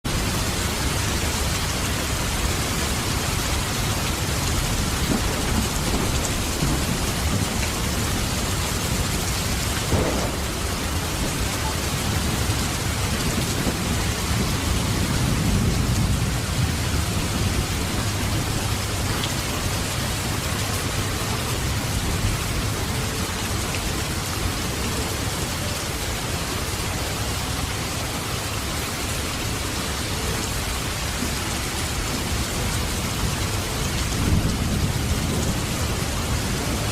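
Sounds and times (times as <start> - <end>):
heavy rain pouring: 0.0 - 36.9
low rumbles: 0.1 - 24.8.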